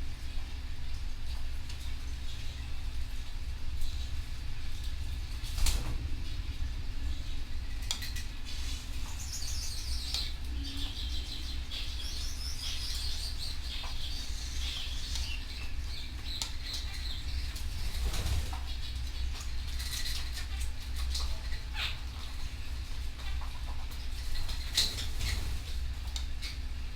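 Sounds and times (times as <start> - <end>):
steady low hum: 0.0 - 26.9
canary singing warbling trills: 9.0 - 20.6, 21.3 - 22.4.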